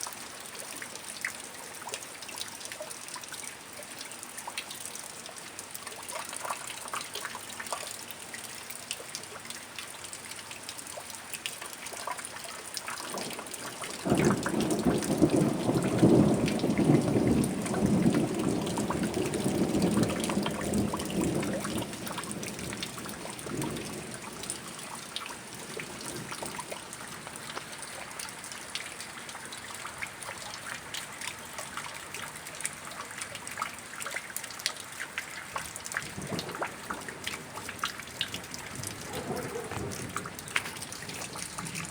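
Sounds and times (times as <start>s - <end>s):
steady rain with drips: 0.0s - 41.9s
thunder clap rumbling: 14.0s - 26.8s, 36.0s - 41.9s.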